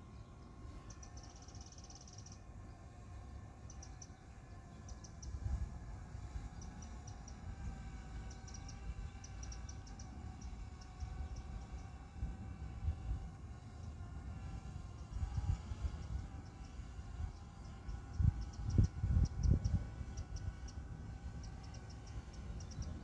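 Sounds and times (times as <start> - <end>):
small bird chirping: 0.0 - 2.5, 3.6 - 5.4, 6.5 - 12.0, 16.4 - 23.0.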